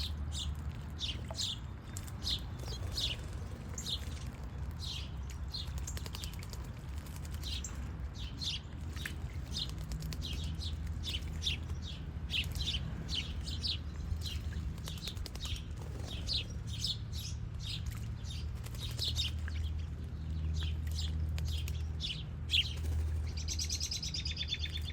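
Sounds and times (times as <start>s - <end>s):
small songbirds chirping: 0.0s - 24.9s.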